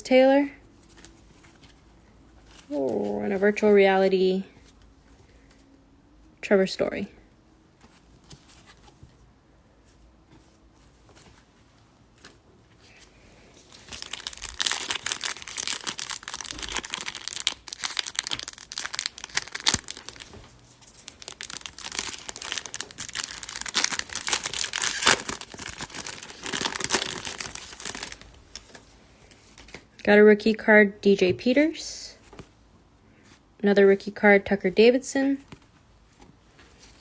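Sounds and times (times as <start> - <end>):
foil wrapper crinkling and tearing: 13.6 - 28.8.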